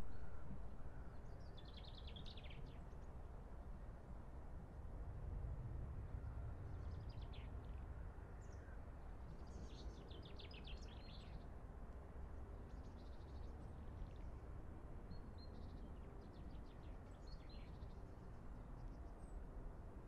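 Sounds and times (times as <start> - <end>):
low background rumble: 0.0 - 2.5.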